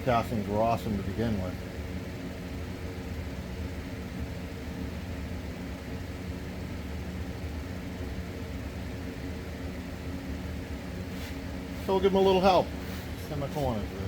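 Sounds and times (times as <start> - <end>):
machine humming: 7.2 - 14.0.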